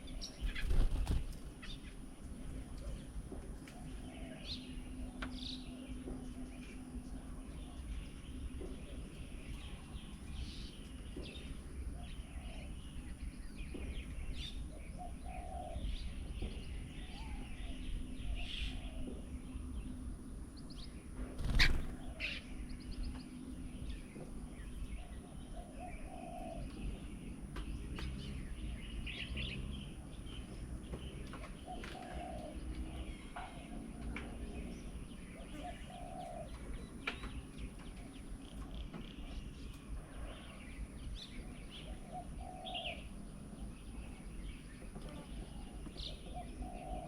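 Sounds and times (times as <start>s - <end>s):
birds chirping and whistling: 0.0s - 2.1s, 3.8s - 47.0s
birds cooing: 0.0s - 20.0s, 21.2s - 47.0s.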